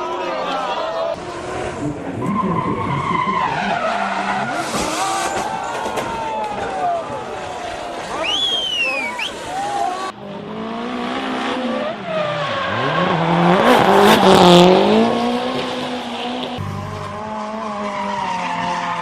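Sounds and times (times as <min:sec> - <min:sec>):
tyres squealing and skidding: 0:02.0 - 0:06.9, 0:11.8 - 0:13.5
car engine revving hard: 0:12.6 - 0:18.2.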